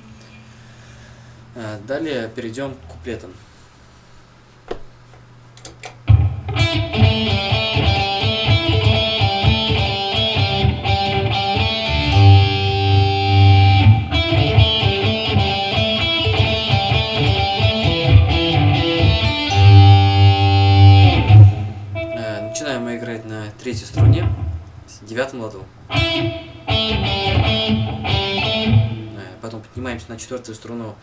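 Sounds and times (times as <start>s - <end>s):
bass line: 6.1s - 24.9s
guitar picking melodic riff: 6.1s - 24.9s, 25.9s - 29.4s.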